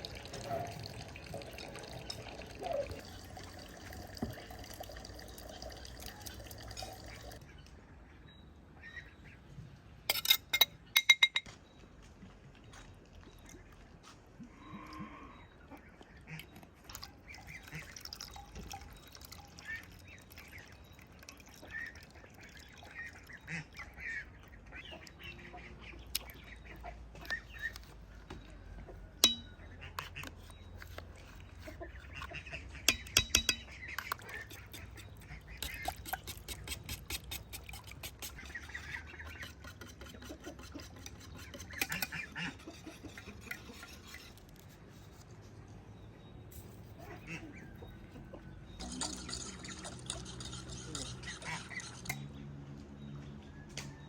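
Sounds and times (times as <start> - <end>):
farmyard fowl calling: 40.1 - 43.9, 47.0 - 52.1.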